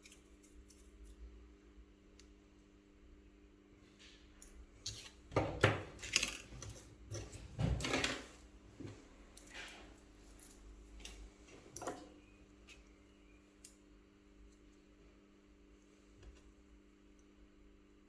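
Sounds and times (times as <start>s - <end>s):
small tools clicking and tapping: 0.0s - 1.3s.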